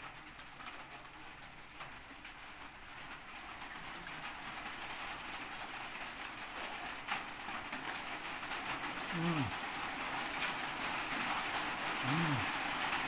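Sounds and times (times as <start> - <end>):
steady hiss: 0.0 - 13.0
birds cooing: 8.6 - 9.7, 11.9 - 12.8.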